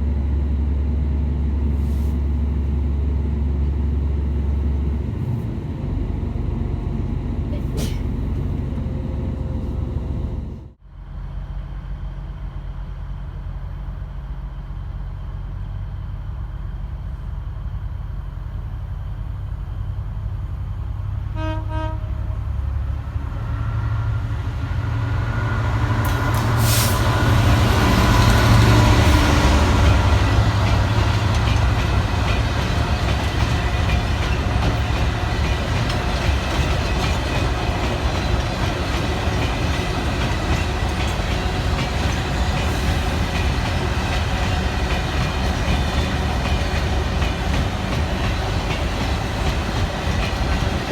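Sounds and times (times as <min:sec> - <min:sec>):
diesel locomotive passing: 0:00.0 - 0:50.9
train horn: 0:21.3 - 0:22.8.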